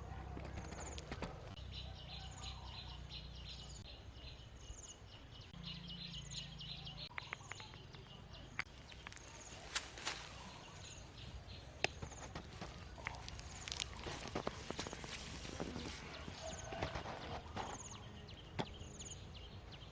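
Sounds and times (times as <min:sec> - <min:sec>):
sharp cracks and rustles: 0:00.3 - 0:01.6, 0:08.6 - 0:18.0.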